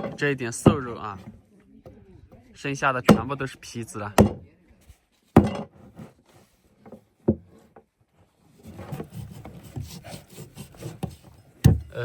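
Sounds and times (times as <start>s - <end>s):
cleaver chopping meat on wood: 3.0s - 3.4s, 4.1s - 4.4s
meat scraped across board: 8.4s - 11.6s.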